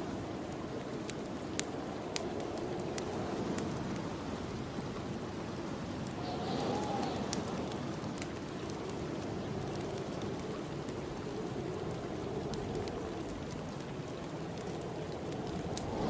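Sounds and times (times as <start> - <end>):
wood fire crackling: 0.0 - 16.0
wind blowing: 0.1 - 16.0
wind whistle: 6.2 - 7.7.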